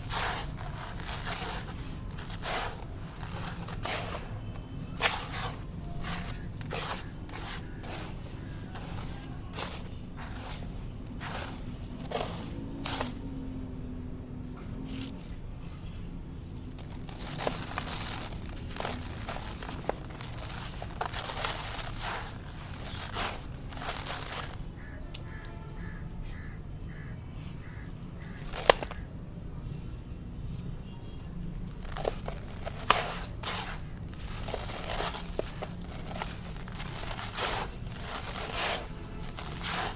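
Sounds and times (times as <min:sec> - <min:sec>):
concrete crumbling and crunching: 0:00.0 - 0:13.4, 0:16.6 - 0:24.8, 0:27.9 - 0:29.1, 0:31.6 - 0:39.9.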